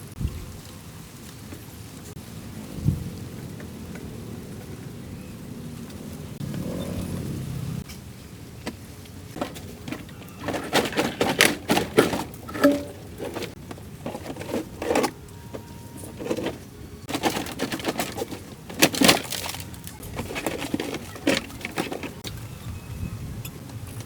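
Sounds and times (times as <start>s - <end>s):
quiet rustling: 8.7s - 22.2s
tools knocking and clattering: 9.4s - 22.2s.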